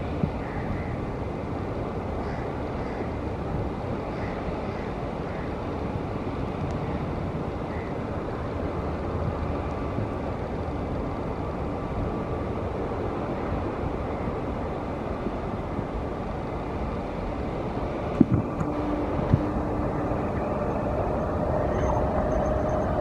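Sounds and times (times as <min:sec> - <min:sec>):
train rumbling and rushing: 0:00.0 - 0:23.0.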